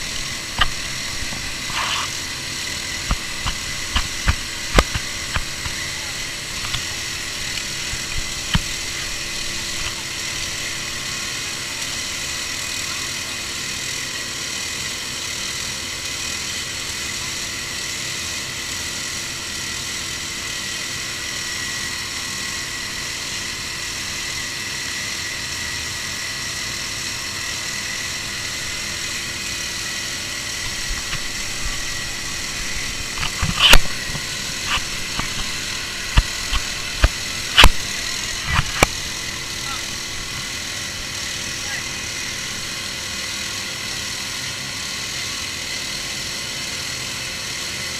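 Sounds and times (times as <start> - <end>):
vehicle engine and road noise: 27.9 - 42.7.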